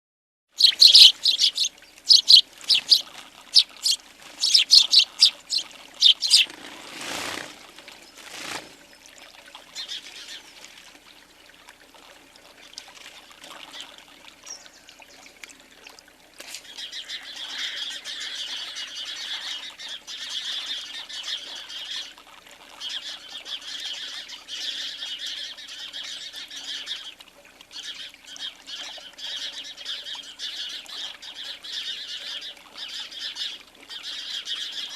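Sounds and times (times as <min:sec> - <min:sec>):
sparrows chirping: 0:00.5 - 0:06.6
soft bird twittering: 0:00.6 - 0:06.5.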